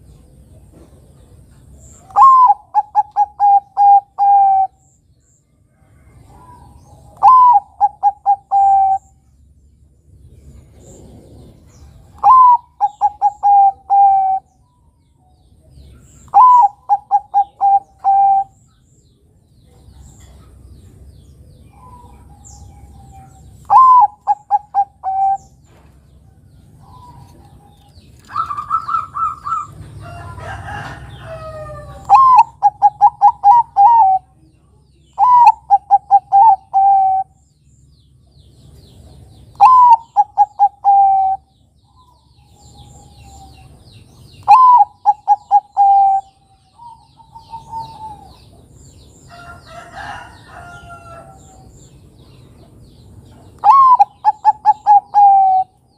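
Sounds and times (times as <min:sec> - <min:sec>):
dove cooing: 0:02.0 - 0:04.8, 0:06.4 - 0:09.2, 0:10.8 - 0:14.5, 0:16.3 - 0:18.6, 0:21.7 - 0:25.6, 0:26.8 - 0:34.4, 0:35.2 - 0:37.4, 0:39.5 - 0:43.6, 0:44.4 - 0:48.6, 0:53.6 - 0:55.8.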